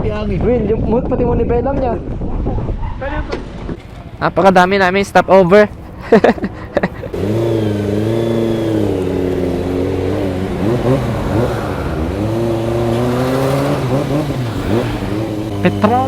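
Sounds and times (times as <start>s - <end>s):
wind rushing: 8.8s - 15.6s.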